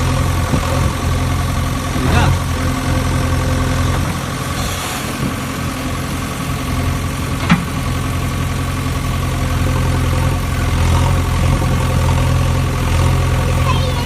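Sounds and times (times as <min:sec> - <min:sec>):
diesel engine running steadily: 0:00.0 - 0:14.0.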